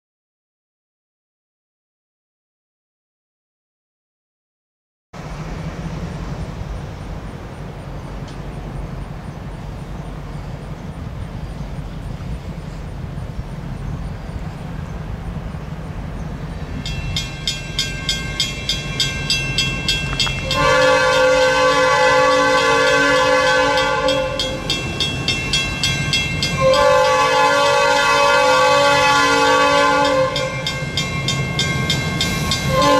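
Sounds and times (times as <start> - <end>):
diesel engine rumble: 5.2 - 21.0
bell ringing: 16.8 - 20.7, 23.8 - 26.8, 30.0 - 32.8
locomotive air horn blasts: 20.4 - 24.8, 26.5 - 30.8, 32.4 - 32.9.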